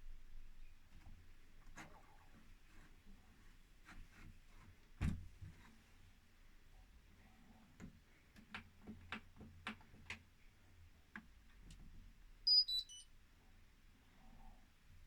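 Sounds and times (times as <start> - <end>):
high electronic beeps: 12.5 - 13.0.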